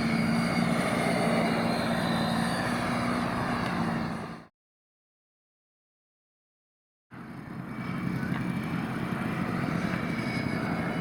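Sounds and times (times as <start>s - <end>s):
electric ducted fans whining: 0.0s - 4.4s, 7.2s - 11.0s.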